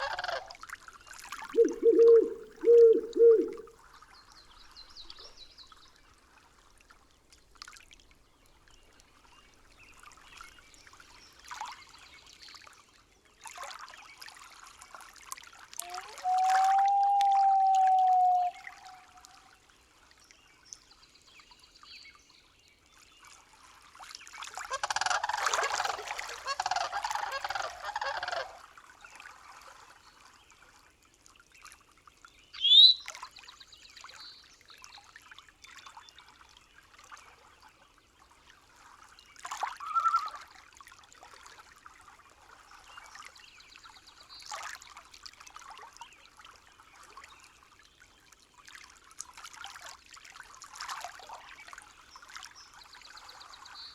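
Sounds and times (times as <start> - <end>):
trickling water: 0.0 - 11.8, 13.4 - 20.1, 23.7 - 32.3, 38.4 - 53.9
bird calls: 1.6 - 3.7, 15.8 - 19.2, 32.6 - 33.0, 39.8 - 40.4
rising bird chirp: 1.6 - 3.7, 15.9 - 19.1, 32.6 - 33.0.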